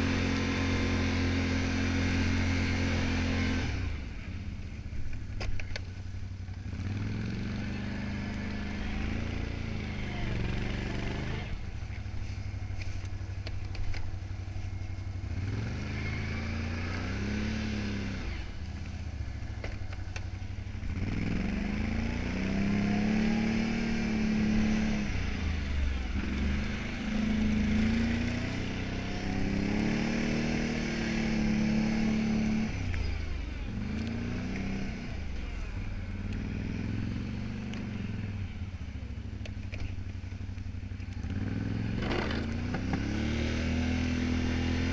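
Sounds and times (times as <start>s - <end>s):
atv engine revving under load: 0.0s - 4.6s, 6.5s - 44.9s.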